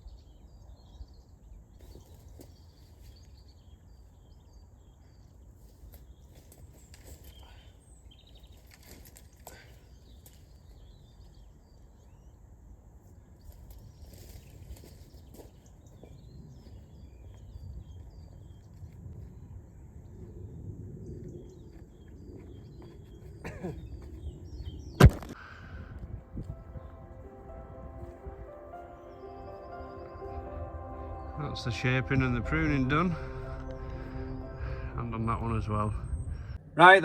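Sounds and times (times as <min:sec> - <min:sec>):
low steady rumble: 0:30.1 - 0:37.0.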